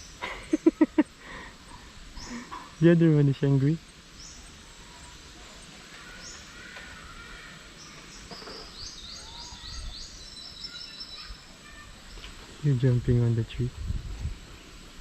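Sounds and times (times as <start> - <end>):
faint outdoor background: 0.0 - 15.0
high bird chirps: 8.0 - 12.3.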